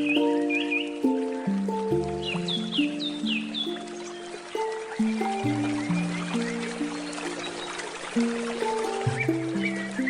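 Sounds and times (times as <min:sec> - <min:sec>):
handpan notes ringing: 0:00.0 - 0:10.0
river flowing: 0:00.0 - 0:10.0.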